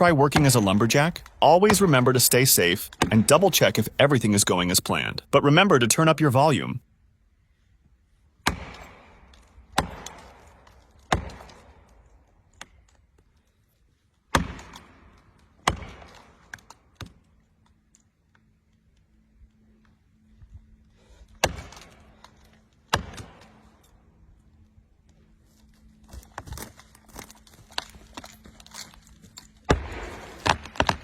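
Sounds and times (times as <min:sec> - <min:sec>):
axe chopping wood: 0:02.9 - 0:03.3, 0:08.4 - 0:12.0, 0:14.3 - 0:17.2, 0:21.4 - 0:22.0, 0:22.9 - 0:23.6, 0:29.7 - 0:31.0.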